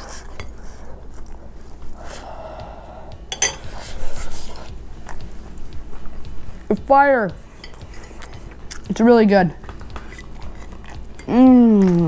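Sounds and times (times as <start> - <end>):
person chewing crispy food: 9.8 - 12.0.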